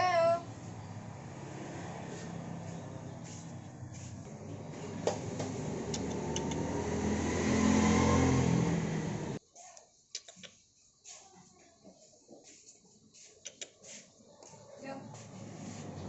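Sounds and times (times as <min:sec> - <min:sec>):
engine running: 0:00.4 - 0:09.4.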